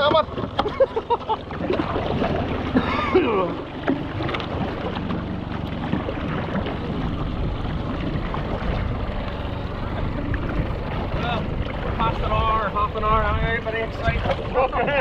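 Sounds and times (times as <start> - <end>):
water washing around kayak: 0.0 - 15.0
wind on microphone: 5.9 - 14.6.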